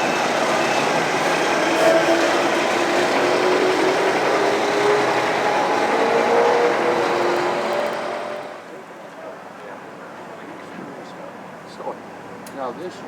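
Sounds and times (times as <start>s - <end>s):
truck engines running: 0.0s - 8.7s.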